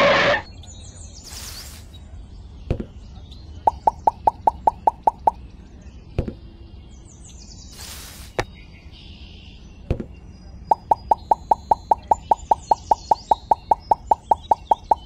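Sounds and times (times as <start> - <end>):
short hiss: 1.3 - 1.9, 7.8 - 8.4.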